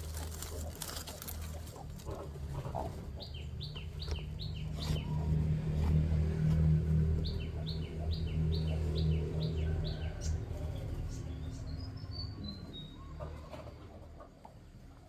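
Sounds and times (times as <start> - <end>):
chick peeping: 0.0 - 6.2.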